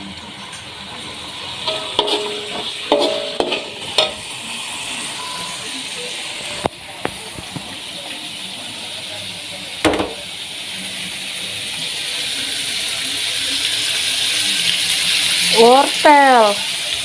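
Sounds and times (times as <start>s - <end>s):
food sizzling in a pan: 0.0s - 17.0s
knock: 9.9s - 10.2s.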